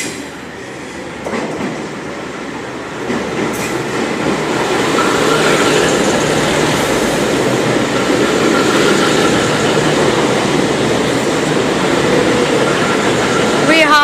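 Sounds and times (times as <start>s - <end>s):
train engines and wheels rumbling: 0.0s - 14.0s.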